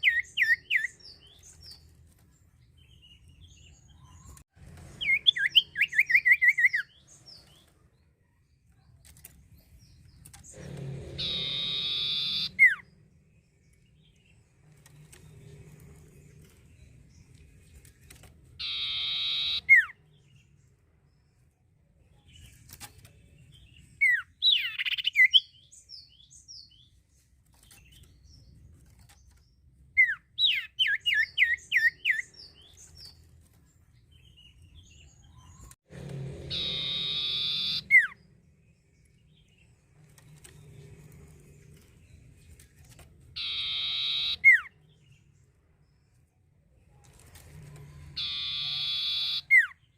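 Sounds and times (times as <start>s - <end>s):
songbird singing buzzy notes: 9.6s - 17.4s, 18.6s - 20.6s, 36.5s - 42.5s, 43.3s - 45.6s, 48.2s - 49.9s
bird chattering phrase: 18.6s - 19.8s.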